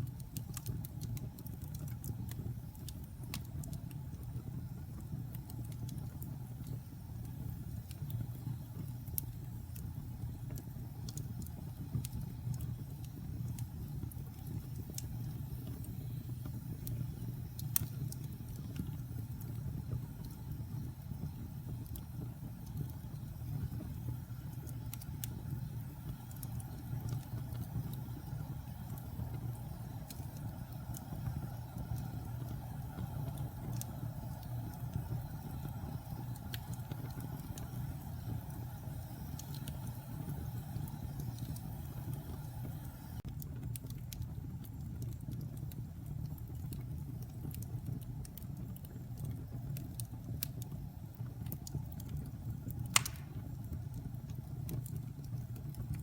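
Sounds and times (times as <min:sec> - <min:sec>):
fire popping: 0:00.0 - 0:56.0
wood fire crackling: 0:00.0 - 0:56.0.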